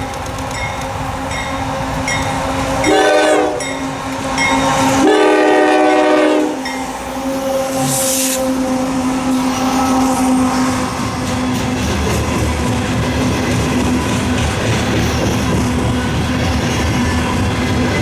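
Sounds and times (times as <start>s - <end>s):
train humming: 0.0s - 18.0s
locomotive air horn blasts: 2.8s - 3.7s, 5.0s - 11.2s
brief hiss: 7.2s - 10.8s.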